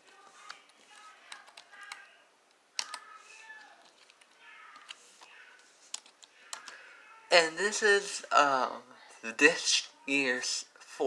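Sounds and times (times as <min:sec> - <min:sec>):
faint clicks and taps: 0:00.0 - 0:06.8.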